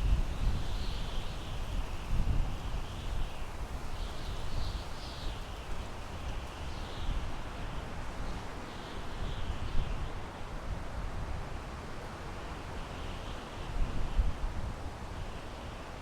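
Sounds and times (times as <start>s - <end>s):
wind rumble on microphone: 0.0s - 16.0s
wind through pine trees: 0.0s - 16.0s.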